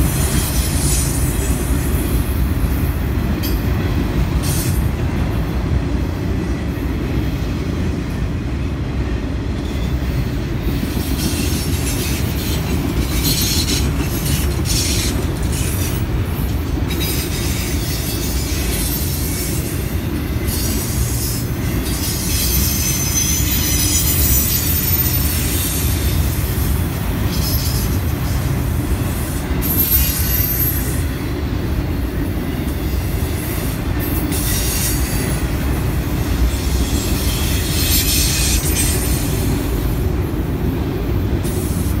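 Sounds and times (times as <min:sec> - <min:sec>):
steel train wheels rumbling on rail: 0:00.0 - 0:42.0
high-pitched wheel squeals: 0:21.8 - 0:26.2, 0:29.6 - 0:31.0.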